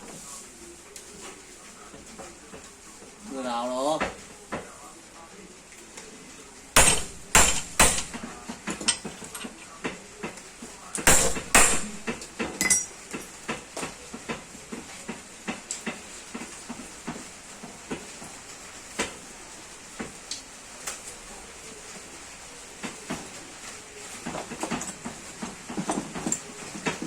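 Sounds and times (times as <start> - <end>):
metal tools knocking and clinking: 11.1 - 13.0.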